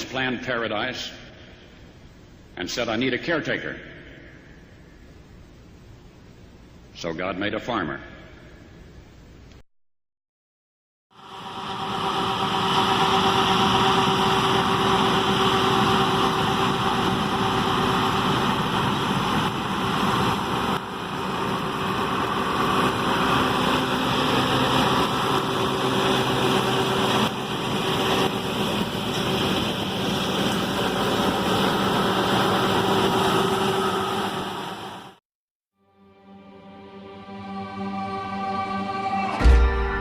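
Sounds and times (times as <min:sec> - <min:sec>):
combine harvester droning: 0:11.2 - 0:35.2.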